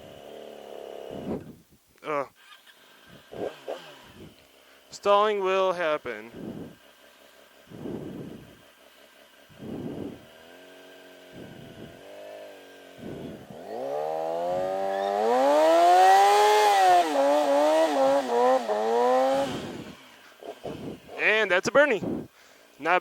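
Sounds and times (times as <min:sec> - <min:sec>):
motorcycle engine revving: 0:00.0 - 0:01.5, 0:02.4 - 0:22.3
low rumbles: 0:06.0 - 0:06.8, 0:07.6 - 0:08.7, 0:09.4 - 0:10.6, 0:11.2 - 0:22.4.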